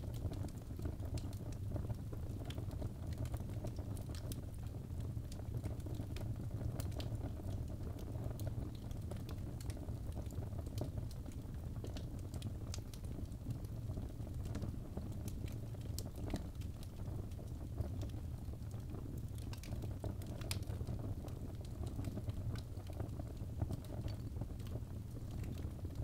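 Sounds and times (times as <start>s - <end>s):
fire rumbling in fireplace: 0.0s - 26.0s
wood crackling and popping: 0.0s - 26.0s.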